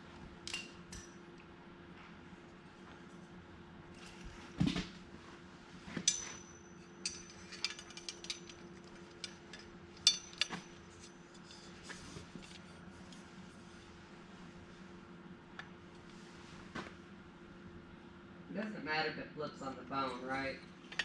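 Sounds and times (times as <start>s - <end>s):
faint hum: 0.0s - 21.0s
small metal parts clinking: 6.1s - 11.6s.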